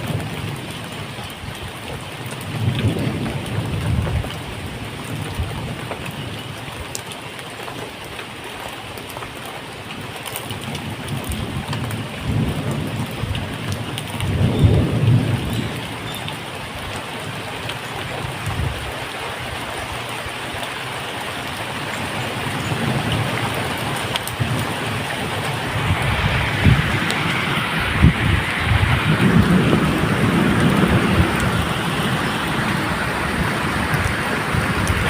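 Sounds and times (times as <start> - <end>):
thunder rumbling: 0.0 - 1.6, 2.2 - 6.0, 10.6 - 19.0, 21.6 - 35.0
steady rain falling: 0.0 - 35.0.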